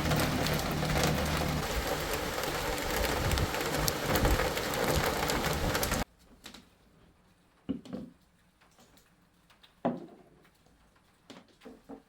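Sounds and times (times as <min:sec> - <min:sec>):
heavy rain: 0:00.0 - 0:06.0.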